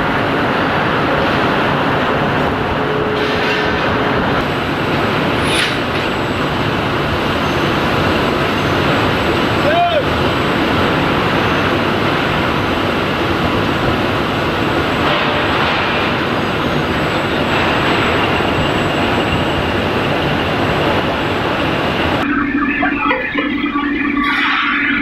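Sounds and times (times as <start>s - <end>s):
low hum: 22.2s - 25.0s.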